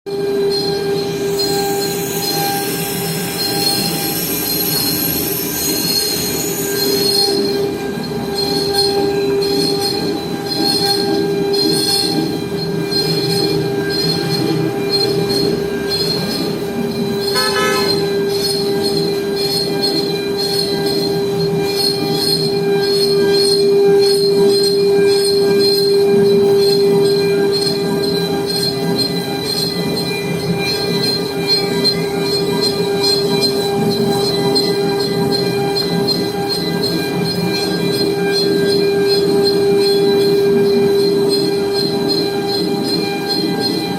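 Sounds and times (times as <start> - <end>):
machine high-pitched whine: 0.1 - 43.9
pulsing high hiss: 17.2 - 18.4.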